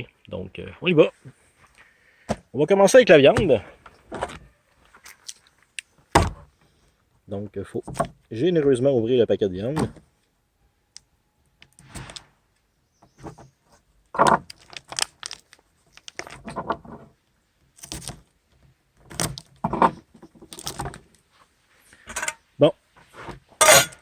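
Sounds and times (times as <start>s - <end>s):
plastic wrapping crinkling: 14.4s - 16.5s.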